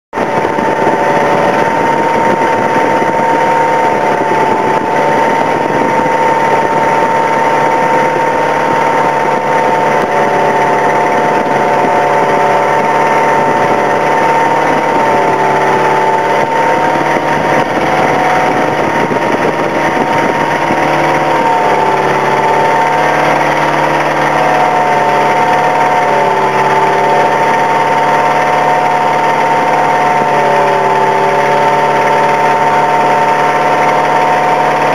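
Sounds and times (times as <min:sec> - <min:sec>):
engine running steadily: 0:00.1 - 0:34.9.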